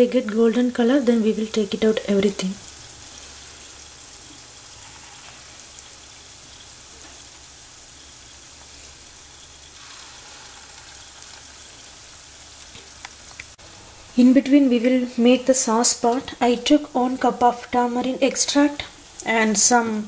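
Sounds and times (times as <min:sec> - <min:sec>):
fritters sizzling in hot oil: 0:00.0 - 0:14.6.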